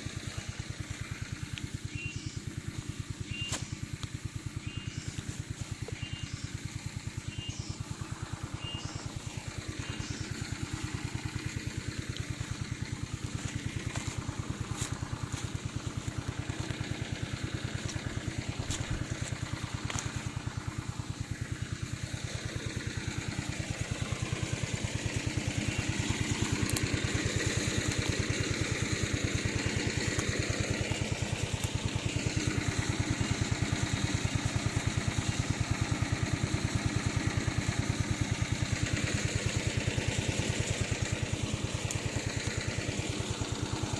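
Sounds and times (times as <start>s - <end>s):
small lawn mower engine running: 0.0s - 43.9s.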